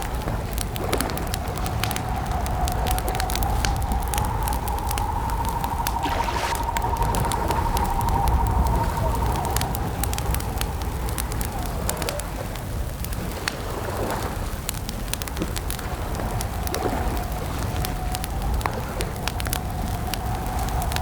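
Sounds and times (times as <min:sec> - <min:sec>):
campfire popping and snapping: 0:00.0 - 0:21.0
low fire rumble: 0:00.0 - 0:21.0
faint wavering tone: 0:03.0 - 0:11.2.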